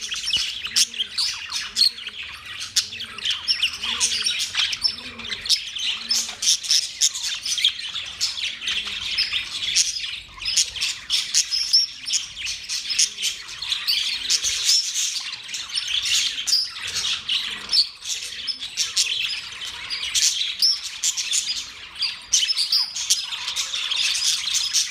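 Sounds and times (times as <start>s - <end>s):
budgerigars chirping and squawking: 0.0s - 24.9s.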